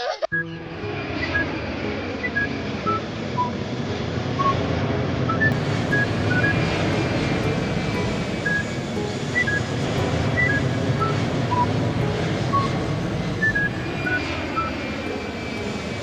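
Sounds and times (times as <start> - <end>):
small motor droning: 5.5 - 16.0.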